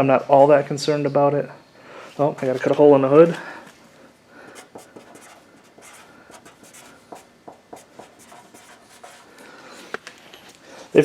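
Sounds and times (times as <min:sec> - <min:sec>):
marker writing on metal: 0:04.5 - 0:09.9.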